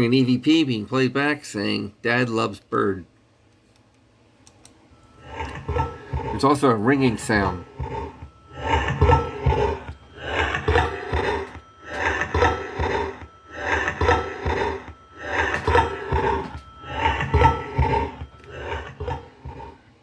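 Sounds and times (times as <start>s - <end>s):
faint high ringing tone: 4.9s - 20.0s.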